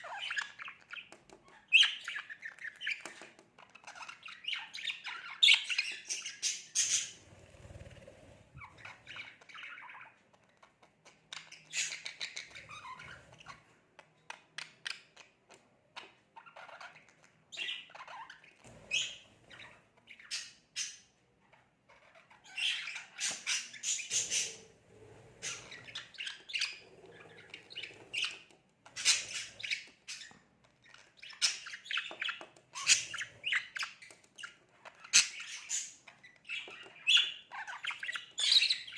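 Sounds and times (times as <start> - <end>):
budgerigar chattering and squawking: 4.1 - 10.2, 22.3 - 24.7, 29.0 - 30.4.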